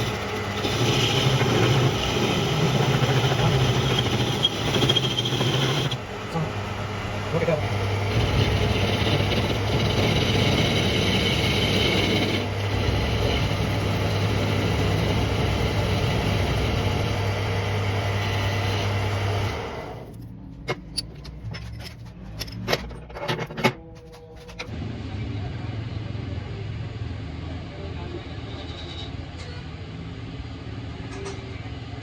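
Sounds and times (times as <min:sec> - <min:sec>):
workshop machine humming: 0:00.0 - 0:25.4.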